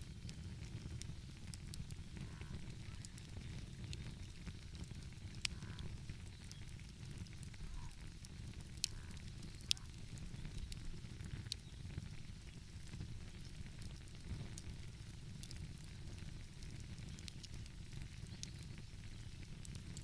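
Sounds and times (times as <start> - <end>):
fire popping: 0.0 - 20.0
wood fire crackling: 0.0 - 20.0.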